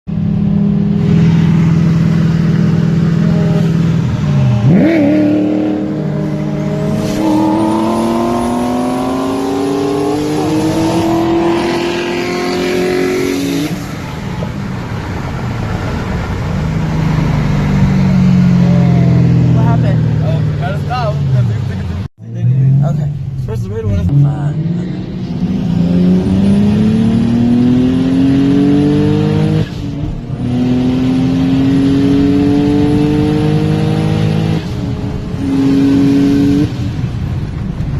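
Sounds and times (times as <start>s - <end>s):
car engine at full throttle: 0.0s - 37.9s.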